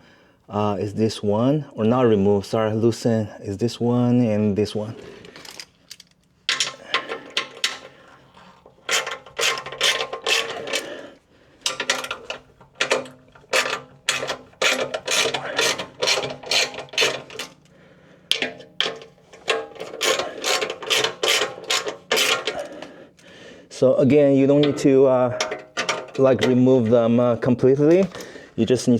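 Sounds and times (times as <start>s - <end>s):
ratchet wrench clicking: 8.9s - 10.9s, 11.7s - 17.6s, 18.3s - 23.3s.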